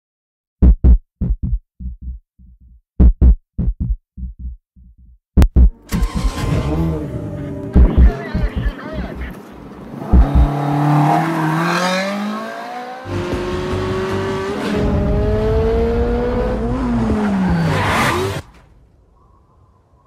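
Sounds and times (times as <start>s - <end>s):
sports car engine revving: 6.0s - 8.6s, 9.9s - 18.4s.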